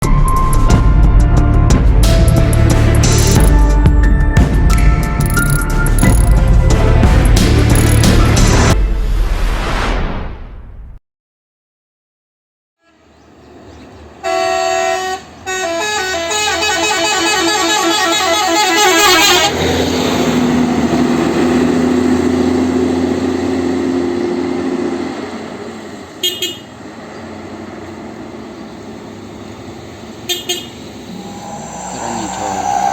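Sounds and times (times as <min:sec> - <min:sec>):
engine and road noise: 0:00.0 - 0:08.8, 0:12.8 - 0:32.9
multi-tone vehicle horn tune: 0:12.8 - 0:13.2, 0:14.2 - 0:19.7, 0:26.2 - 0:26.8, 0:30.2 - 0:32.9.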